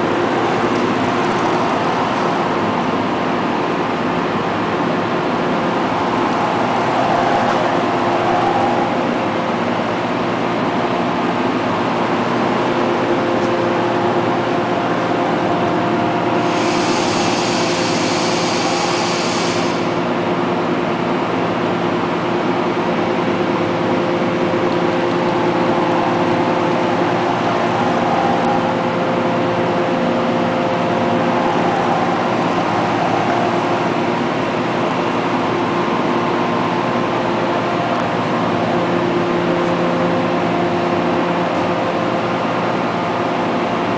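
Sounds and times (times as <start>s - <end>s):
high hiss: 16.4s - 20.0s.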